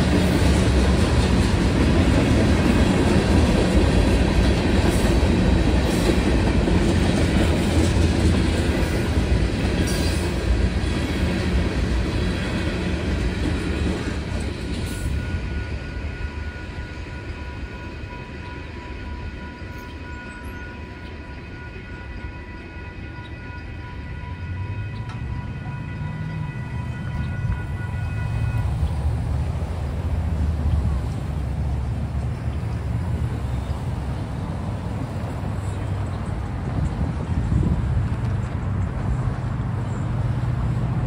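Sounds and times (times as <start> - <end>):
train wheels rumbling and clacking: 0.0 - 21.5, 24.4 - 41.0
crossing warning bell ringing: 14.7 - 29.6.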